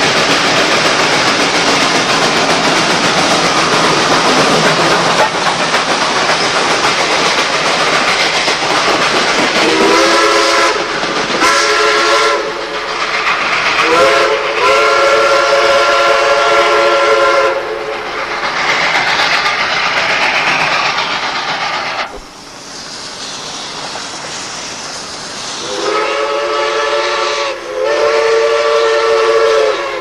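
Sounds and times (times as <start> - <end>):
train running noise: 0.0 - 30.0
steam locomotive whistle blasts: 9.6 - 12.8, 13.7 - 18.0, 25.6 - 30.0.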